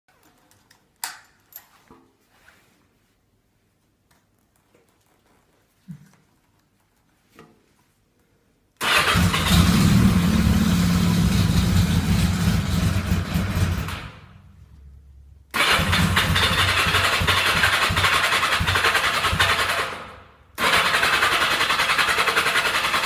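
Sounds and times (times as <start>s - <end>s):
motorcycle engine starting and running: 8.8s - 14.5s, 15.5s - 23.0s.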